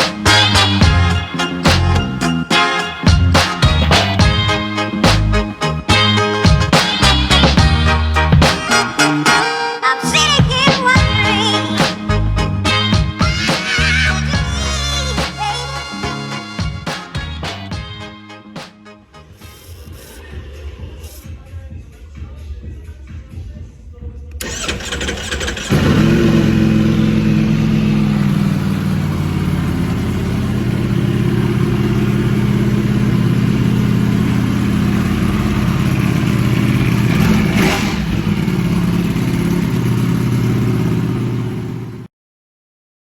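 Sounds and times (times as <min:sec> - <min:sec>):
starter motor cranking: 0:24.4 - 0:27.1
motorcycle engine idling: 0:24.4 - 0:42.1.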